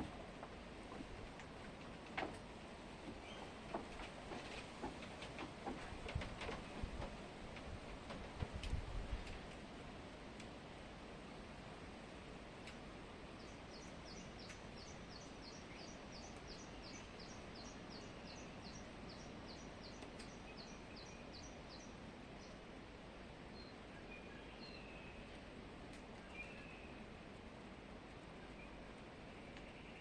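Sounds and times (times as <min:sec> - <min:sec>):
faint background hiss: 0:00.0 - 0:30.0.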